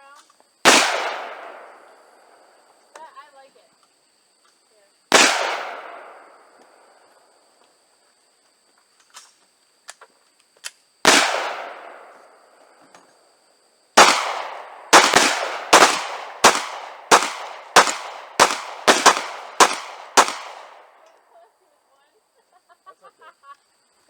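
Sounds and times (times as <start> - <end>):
gunshots: 0.7 - 2.1, 5.1 - 6.6, 11.1 - 12.4, 14.0 - 21.1
firearm clicks: 14.0 - 21.2.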